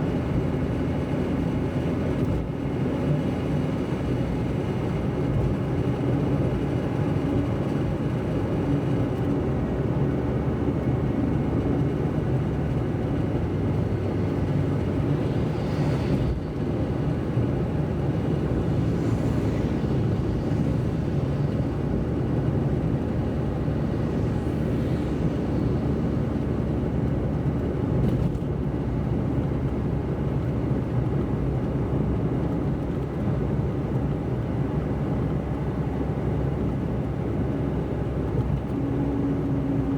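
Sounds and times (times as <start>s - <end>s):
car engine and tyre rumble: 0.0s - 39.9s
passing vehicles hiss: 14.0s - 26.9s.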